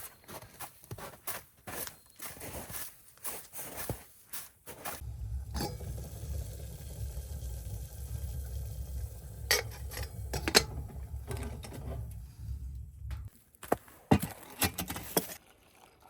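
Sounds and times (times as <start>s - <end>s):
low rumble: 5.0s - 13.3s.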